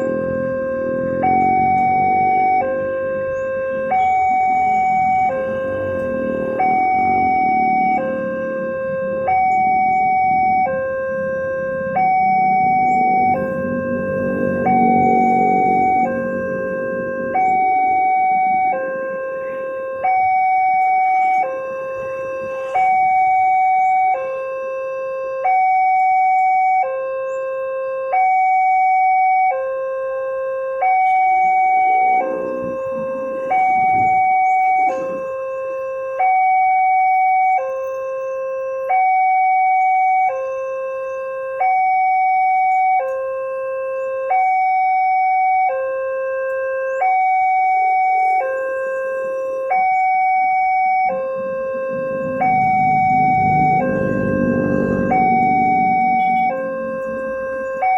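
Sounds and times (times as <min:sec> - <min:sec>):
level-crossing two-tone alarm: 0:00.0 - 0:57.9
low rumble: 0:51.2 - 0:57.9.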